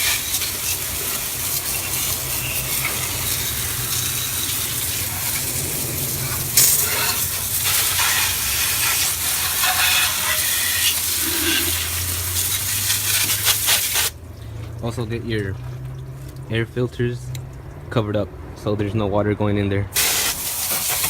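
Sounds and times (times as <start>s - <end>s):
hose spraying water on engine: 0.0s - 17.7s, 20.0s - 21.0s.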